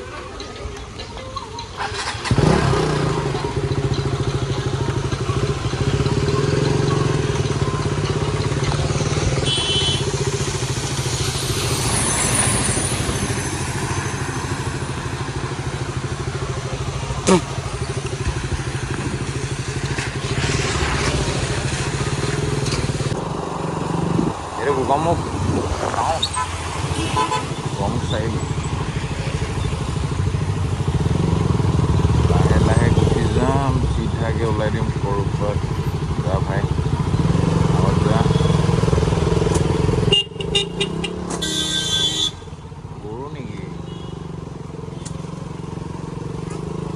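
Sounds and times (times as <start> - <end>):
motorcycle engine running: 0.0 - 46.9
rushing wind noise: 9.1 - 15.1, 17.2 - 28.0.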